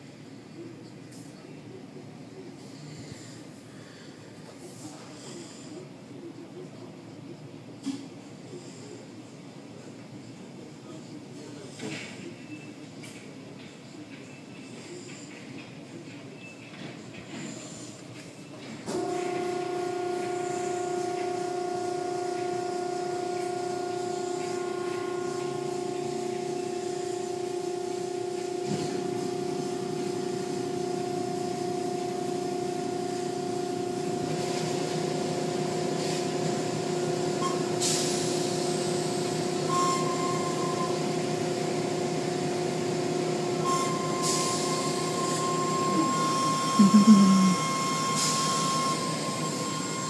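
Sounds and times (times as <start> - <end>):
car wash machinery motor hum: 18.8 - 50.0.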